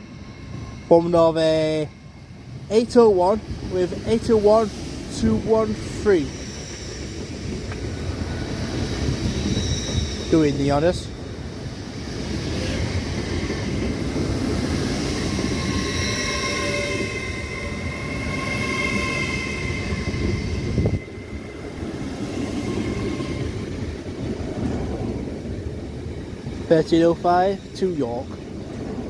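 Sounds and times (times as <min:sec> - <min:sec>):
train rumbling: 0:00.0 - 0:29.0
squealing wheels and brakes: 0:06.2 - 0:08.1, 0:08.7 - 0:11.1, 0:14.9 - 0:23.6.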